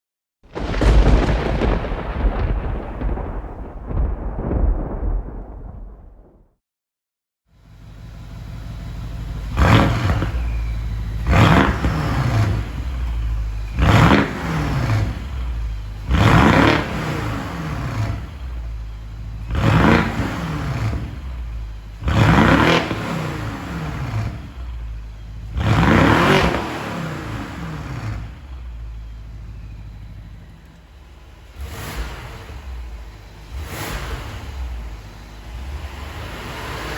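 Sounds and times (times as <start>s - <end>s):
car engine idling and revving: 7.6s - 36.9s.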